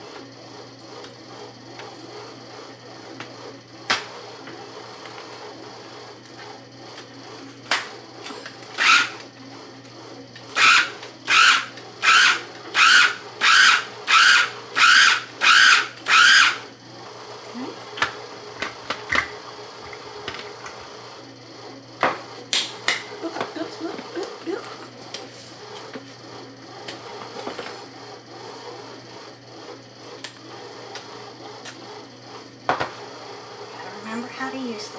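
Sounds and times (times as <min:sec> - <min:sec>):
electric food chopper pulsing: 0:00.0 - 0:34.9.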